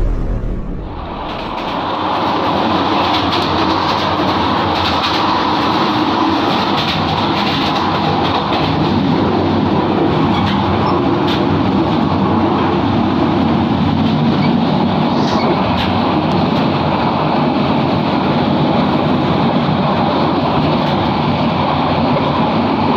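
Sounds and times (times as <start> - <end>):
train wheels rumbling on rail: 0.0 - 22.9
faint clicks over rail joints: 3.0 - 9.3.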